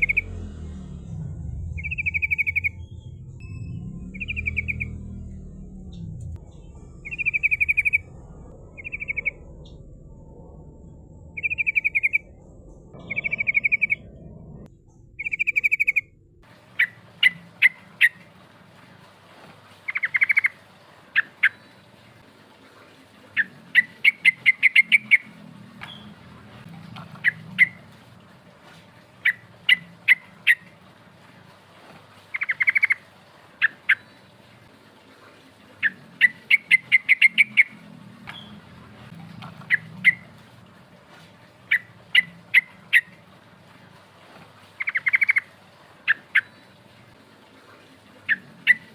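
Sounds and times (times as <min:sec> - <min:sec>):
bird sharp chirping: 0:00.0 - 0:09.9, 0:11.4 - 0:14.6, 0:15.2 - 0:16.1
bird buzzy rattling calls: 0:01.8 - 0:05.8, 0:07.0 - 0:08.1, 0:08.8 - 0:09.7, 0:44.6 - 0:47.1.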